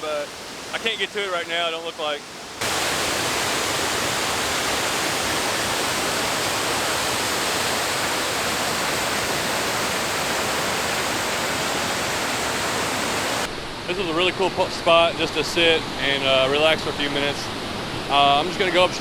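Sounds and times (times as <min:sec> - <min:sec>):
waterfall rushing: 0:00.0 - 0:13.5.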